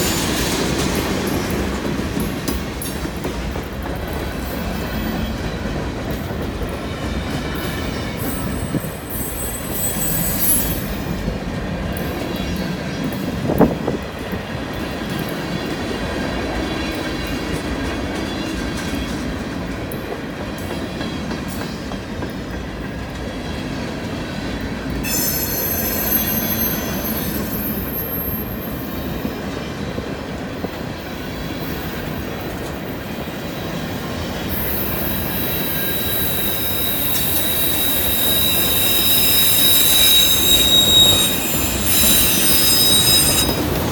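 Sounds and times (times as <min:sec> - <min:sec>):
train wheels rumbling on rail: 0:00.0 - 0:43.9
high-pitched wheel squeal: 0:08.3 - 0:10.9, 0:25.1 - 0:28.8, 0:34.5 - 0:43.9.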